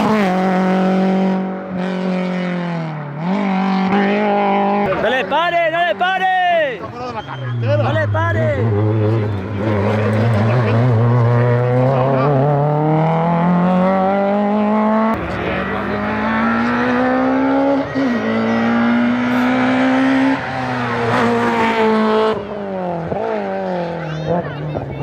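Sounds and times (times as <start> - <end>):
race car engine revving: 0.0 - 5.8, 7.2 - 25.0.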